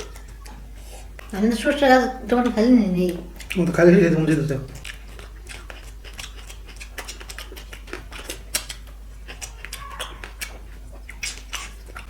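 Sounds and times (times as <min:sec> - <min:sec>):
chewing and lip-smacking: 0:00.0 - 0:12.0.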